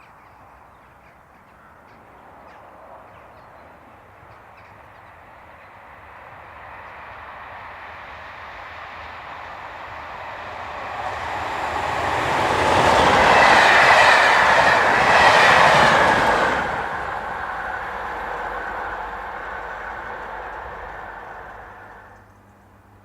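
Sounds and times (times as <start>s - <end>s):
diesel locomotives passing: 0.4s - 23.0s
train wheel noise: 4.4s - 23.0s.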